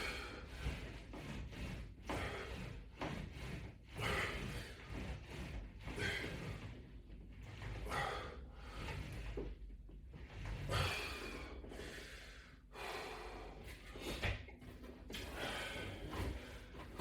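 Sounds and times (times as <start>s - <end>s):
person breathing hard: 0.0s - 1.1s, 7.8s - 9.2s, 10.7s - 14.4s, 15.1s - 17.0s.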